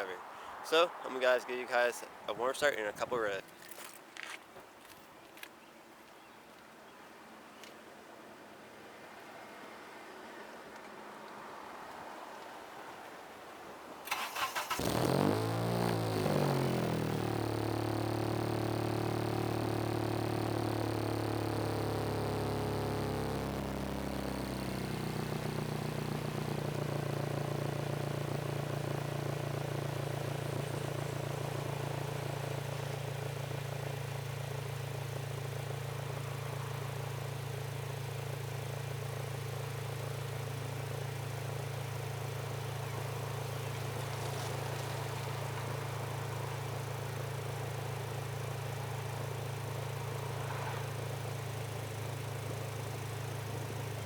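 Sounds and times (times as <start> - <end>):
car engine idling through loud exhaust: 14.8 - 54.0.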